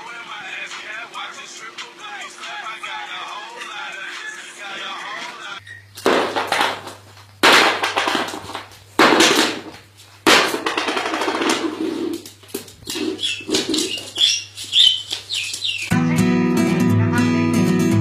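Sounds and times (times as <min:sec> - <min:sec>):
parrot chirping calls: 0:12.8 - 0:15.9.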